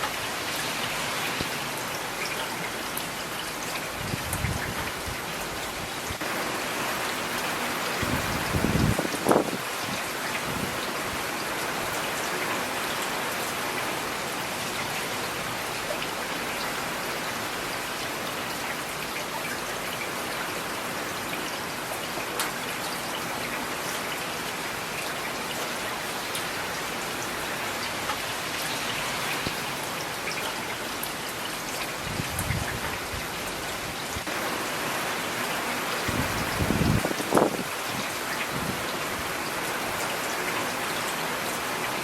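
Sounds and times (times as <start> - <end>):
steady rain falling: 0.0 - 42.0.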